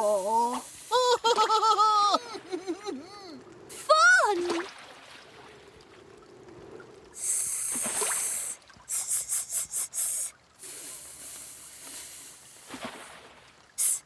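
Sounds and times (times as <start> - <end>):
cartoon spray hissing: 0.0 - 1.2, 7.2 - 12.8, 13.8 - 14.0.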